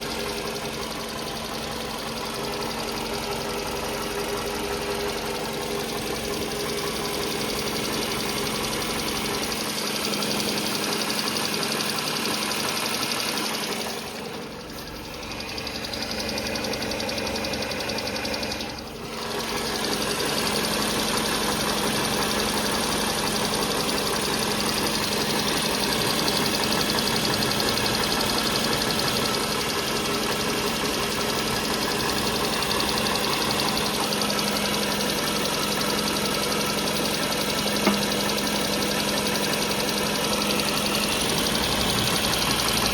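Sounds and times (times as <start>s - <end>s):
car engine running: 0.0s - 42.9s
engine knock: 0.0s - 42.9s.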